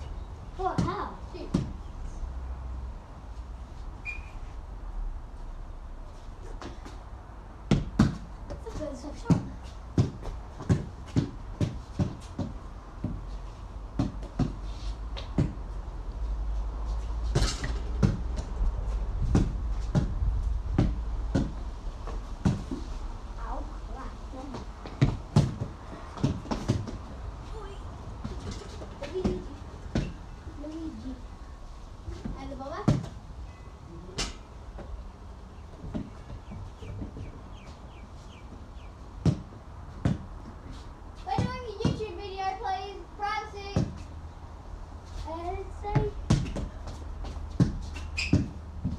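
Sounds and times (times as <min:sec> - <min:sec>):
small bird chirping: 0:04.0 - 0:04.5
basketball bouncing on hard surface: 0:07.7 - 0:13.2, 0:14.0 - 0:14.6, 0:15.3 - 0:15.6, 0:17.3 - 0:18.5, 0:19.2 - 0:22.8, 0:24.5 - 0:27.0, 0:32.8 - 0:33.1, 0:39.2 - 0:40.3, 0:41.3 - 0:42.0, 0:45.9 - 0:48.9
steady low rumble: 0:15.6 - 0:26.2
basketball bouncing: 0:24.9 - 0:27.0, 0:45.9 - 0:46.7.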